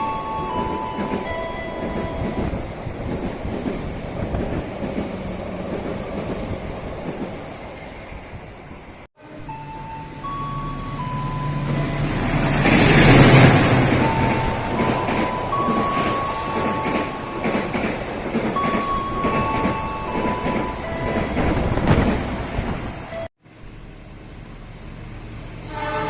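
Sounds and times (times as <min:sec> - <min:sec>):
steady high tones: 0:00.0 - 0:03.2, 0:09.2 - 0:23.3
train passing with rattling: 0:00.0 - 0:23.3.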